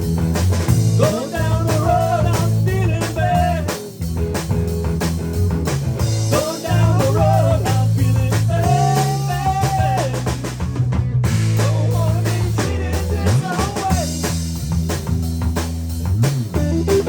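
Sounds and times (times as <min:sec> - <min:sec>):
bass guitar: 0:00.0 - 0:17.0
drum kit: 0:00.0 - 0:17.0
lead guitar bending notes: 0:16.1 - 0:17.0.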